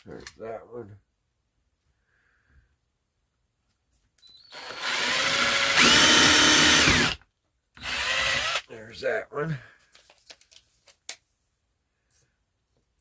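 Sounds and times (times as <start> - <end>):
electric drill boring into wood: 4.3 - 7.2, 7.8 - 8.7.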